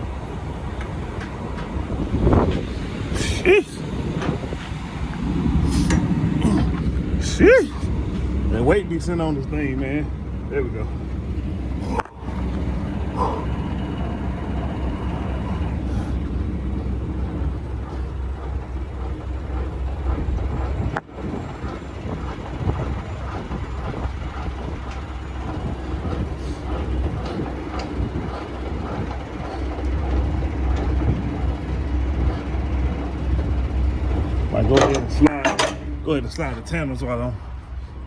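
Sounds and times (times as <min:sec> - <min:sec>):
diesel engine idling: 0:00.0 - 0:38.0
clicks and knocks: 0:34.7 - 0:36.0.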